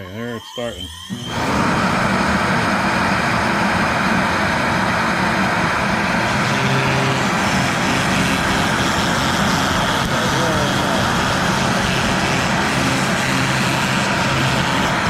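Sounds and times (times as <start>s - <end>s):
router spindle whirring: 0.0s - 15.0s.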